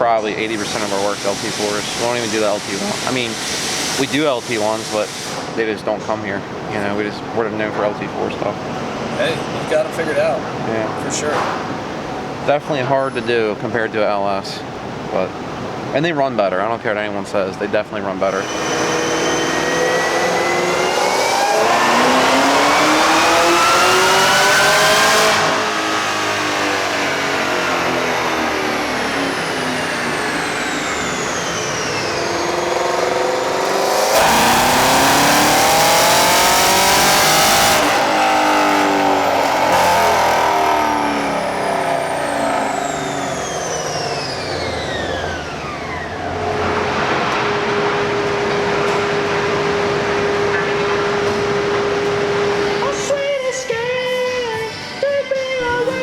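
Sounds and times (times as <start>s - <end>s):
car engine revving hard: 0.0s - 5.6s, 18.2s - 53.1s.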